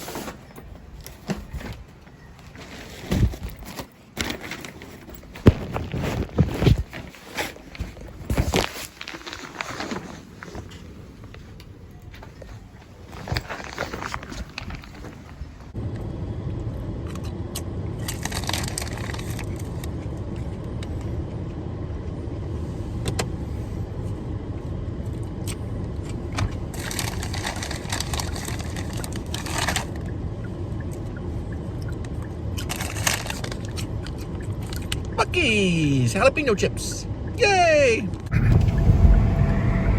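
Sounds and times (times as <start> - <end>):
road and engine noise in car: 14.6 - 39.9.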